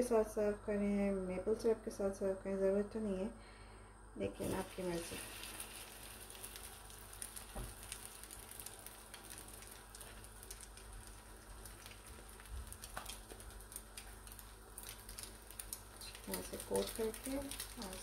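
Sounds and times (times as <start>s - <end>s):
bread frying in oil: 4.3s - 18.0s.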